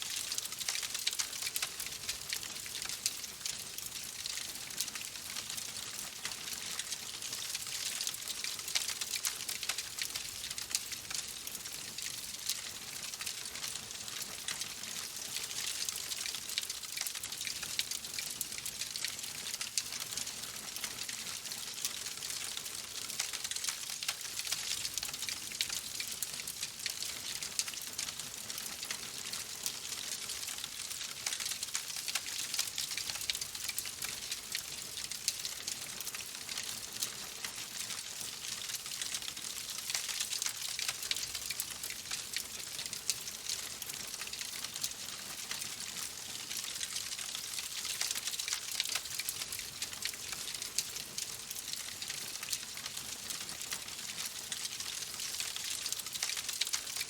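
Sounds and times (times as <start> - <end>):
wood fire crackling: 0.1 - 5.0, 26.9 - 37.9, 38.5 - 57.0.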